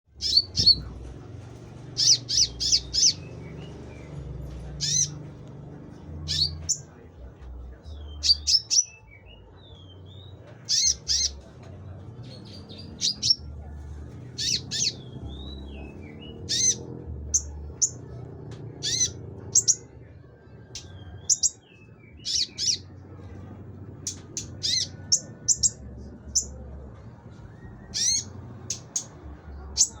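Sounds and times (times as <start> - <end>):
faint low hum: 0.1 - 30.0
songbird chirping and whistling: 0.2 - 0.9, 2.0 - 4.2, 4.8 - 5.2, 6.3 - 6.9, 7.9 - 11.5, 12.3 - 13.4, 14.3 - 18.1, 18.8 - 19.9, 20.8 - 22.9, 24.0 - 26.6, 27.3 - 30.0.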